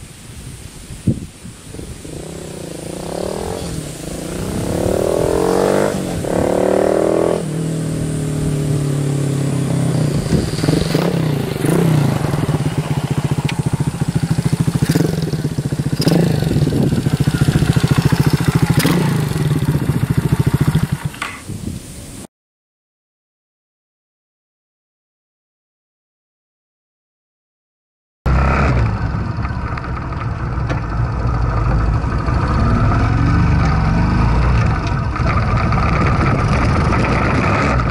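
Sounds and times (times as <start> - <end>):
minibike engine revving: 2.0 - 21.3, 28.3 - 37.9.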